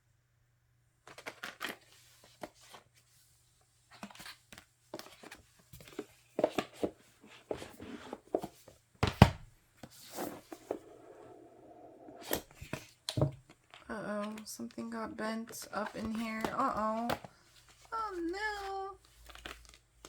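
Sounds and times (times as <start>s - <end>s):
paper and plastic packaging rustling: 1.0s - 3.1s, 12.2s - 20.0s.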